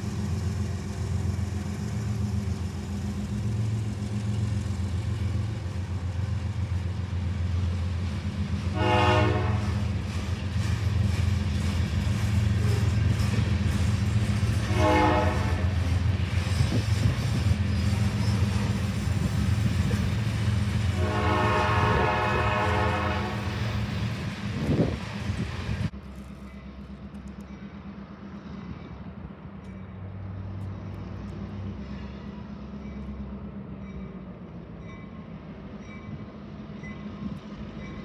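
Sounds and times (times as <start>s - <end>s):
freight train rumbling past: 0.0s - 38.0s
locomotive air horn blasts: 8.7s - 9.8s, 14.6s - 15.8s, 20.9s - 23.6s.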